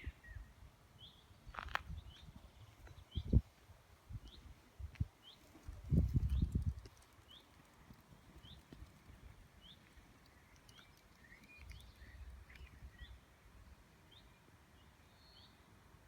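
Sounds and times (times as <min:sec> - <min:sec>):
small bird chirping: 0:05.2 - 0:13.2.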